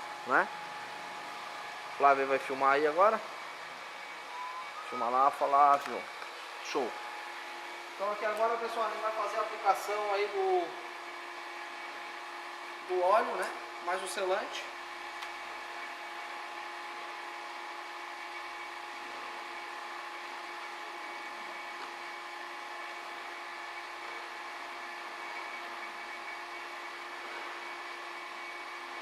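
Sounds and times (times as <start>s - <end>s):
machinery humming: 0.0s - 16.6s.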